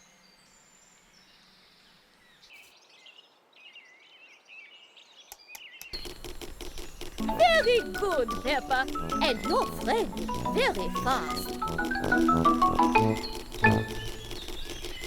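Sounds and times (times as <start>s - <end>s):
faint birdsong chirping: 0.0s - 11.6s, 12.3s - 15.0s
sharp clicks: 5.3s - 15.0s.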